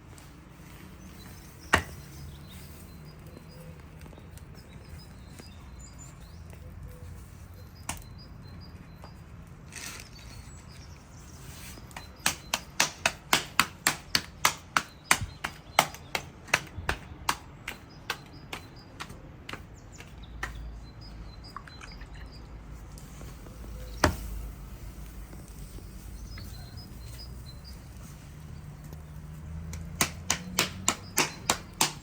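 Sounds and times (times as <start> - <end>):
knife chopping on wooden board: 12.2 - 20.6, 29.7 - 32.0
faint bird chirps: 25.4 - 28.0.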